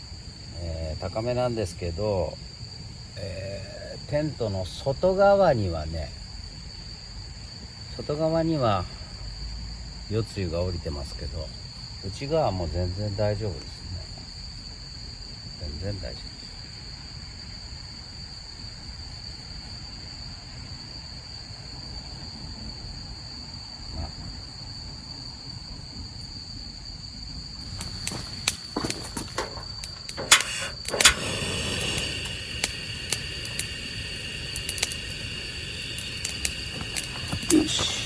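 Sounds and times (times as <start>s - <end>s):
crickets chirring: 0.0s - 38.0s.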